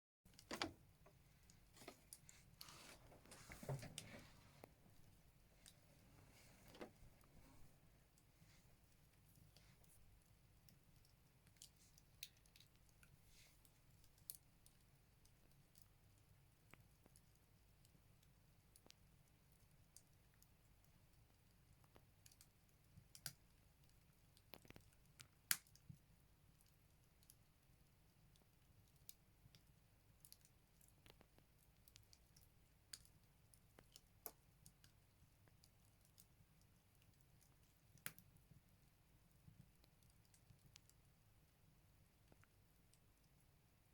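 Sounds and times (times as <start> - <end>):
firewood crackling in stove: 0.3 - 43.9
firewood crackling and popping: 21.8 - 26.0.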